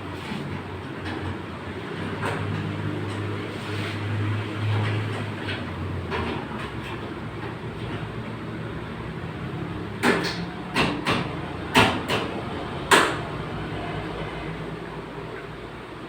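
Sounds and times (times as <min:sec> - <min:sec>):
steady background noise: 0:00.0 - 0:16.0
knocks on car body metal: 0:10.0 - 0:13.2.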